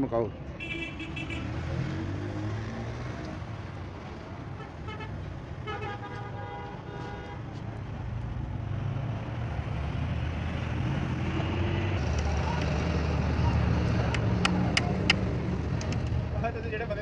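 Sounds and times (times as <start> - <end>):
vehicle horn: 0.6 - 1.6, 4.6 - 7.4.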